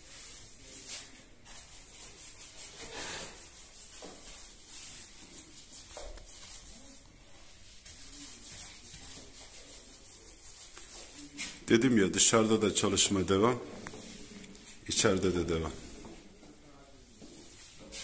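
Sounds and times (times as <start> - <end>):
hand tool scraping a wall: 2.6 - 4.6.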